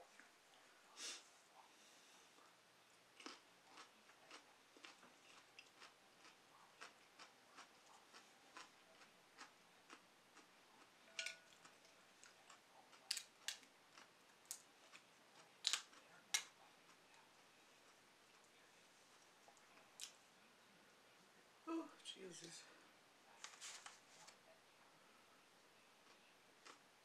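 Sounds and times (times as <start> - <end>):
chewing with wet mouth clicks: 3.2 - 17.3.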